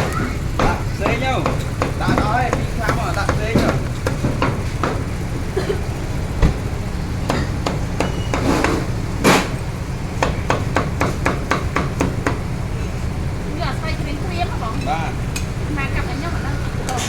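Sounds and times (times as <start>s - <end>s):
steady low hum: 0.0s - 17.0s
sharp knocks on hard surface: 0.6s - 5.1s.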